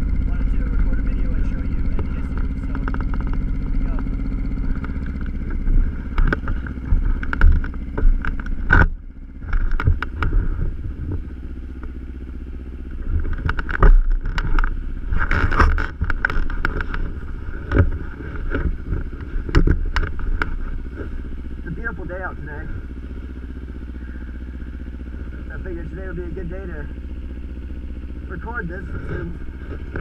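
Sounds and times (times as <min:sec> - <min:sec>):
motorcycle engine idling: 0:00.0 - 0:30.0
knocks and rattles: 0:00.3 - 0:11.3, 0:13.0 - 0:21.7.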